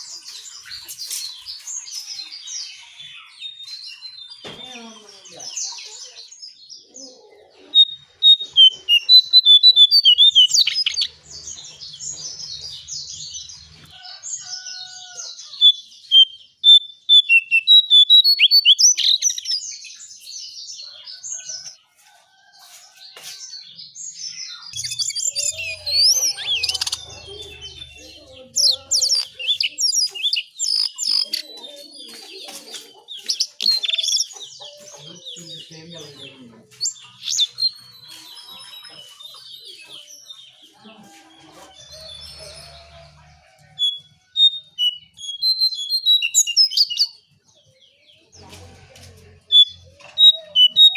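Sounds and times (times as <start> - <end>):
bird chirps: 0.0 - 21.8, 23.2 - 40.8, 41.7 - 48.2, 49.5 - 50.9
bird twittering: 7.8 - 13.7, 14.5 - 19.6, 24.5 - 32.1, 33.1 - 35.6, 43.8 - 47.2, 49.5 - 50.9.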